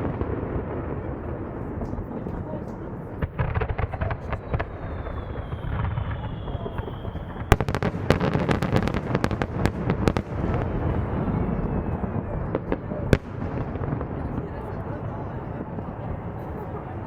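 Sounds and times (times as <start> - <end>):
sharp firework bangs: 0.0 - 16.0
low rumble of bursting shells: 0.0 - 16.6
fireworks crackle: 0.0 - 17.0
firework whistle: 4.3 - 9.0.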